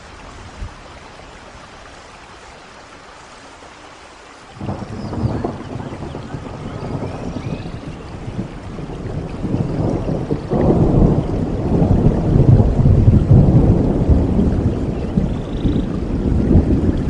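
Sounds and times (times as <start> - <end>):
steady rain: 0.0 - 17.0
rolling thunder: 4.6 - 17.0.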